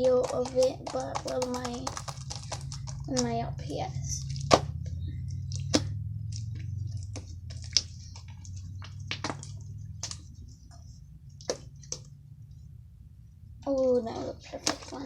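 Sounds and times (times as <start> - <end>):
slime clicking and popping: 0.0 - 3.4, 4.2 - 10.2
low steady hum: 0.0 - 15.0.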